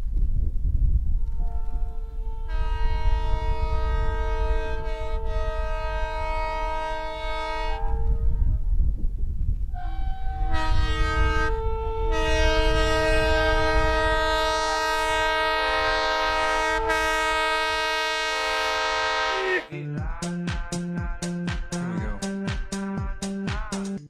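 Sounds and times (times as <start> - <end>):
passing train rumble: 0.0 - 23.8
train air horn blasts: 1.2 - 8.6, 9.7 - 19.7.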